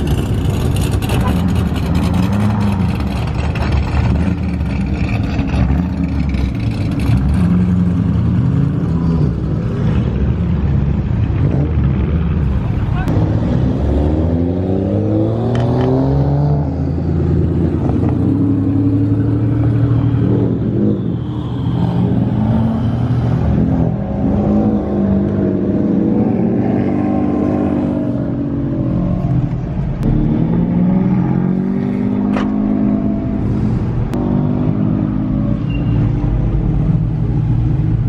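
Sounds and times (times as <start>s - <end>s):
car engine accelerating: 22.0s - 38.0s.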